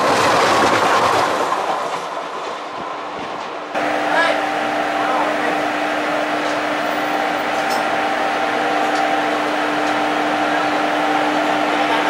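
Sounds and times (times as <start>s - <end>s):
train running noise: 0.0s - 12.0s
constant hum: 3.8s - 12.0s.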